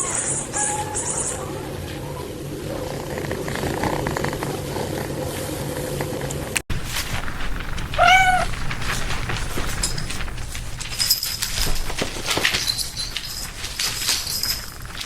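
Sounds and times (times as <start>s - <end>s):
cat meowing: 7.8s - 8.8s.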